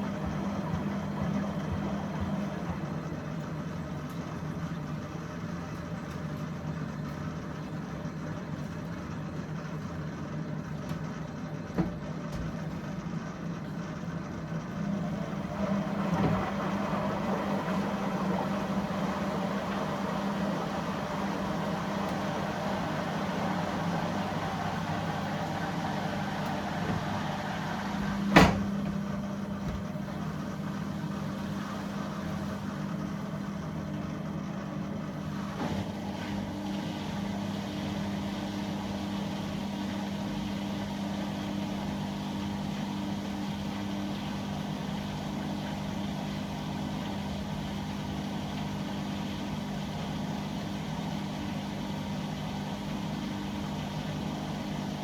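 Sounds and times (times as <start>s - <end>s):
dishwasher pump hum: 0.0s - 55.0s
water washing: 14.9s - 33.6s.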